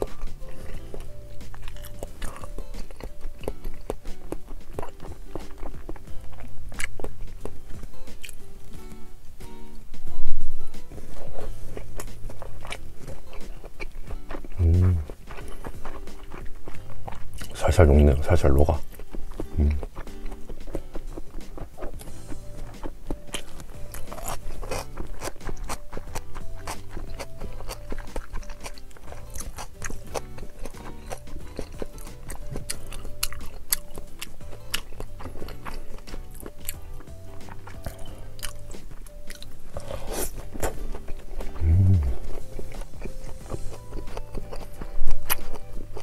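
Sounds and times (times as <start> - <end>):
background music with low notes: 0.0 - 46.0
person chewing: 0.0 - 46.0
wet mouth clicks: 18.9 - 36.7.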